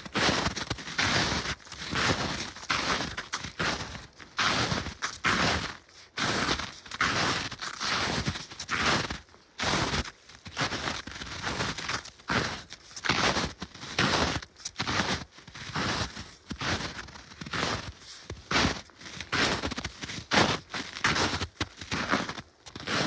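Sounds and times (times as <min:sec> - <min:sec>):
footsteps crunching in snow: 0:00.0 - 0:23.0.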